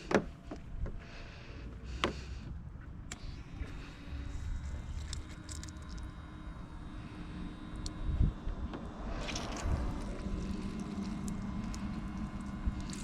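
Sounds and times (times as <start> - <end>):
wind buffeting microphone: 7.5 - 13.0.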